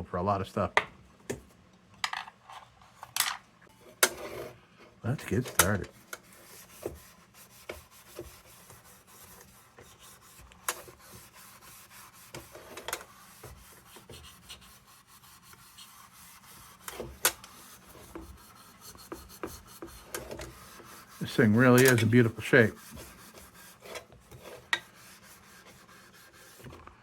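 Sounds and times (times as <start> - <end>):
scraping on metal: 15.6 - 26.7.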